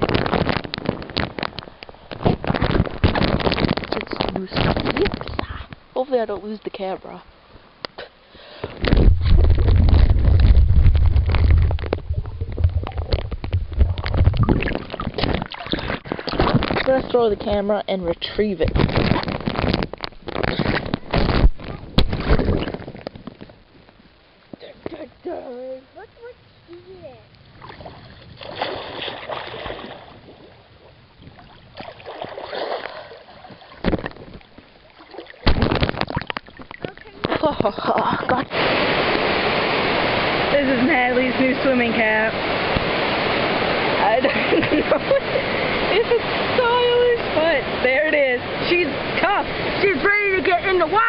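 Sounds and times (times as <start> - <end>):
water churning and splashing: 0.0 - 5.9, 8.5 - 23.6, 27.5 - 51.0
sharp thump: 35.5 - 36.1.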